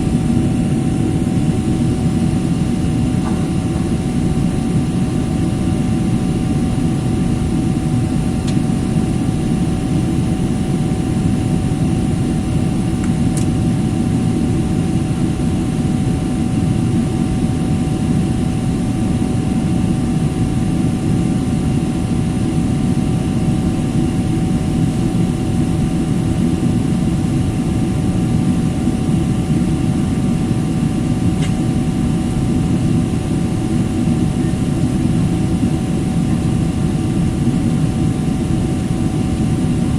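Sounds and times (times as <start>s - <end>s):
rushing air in cabin: 0.0s - 13.6s
jet engines droning: 0.0s - 39.9s.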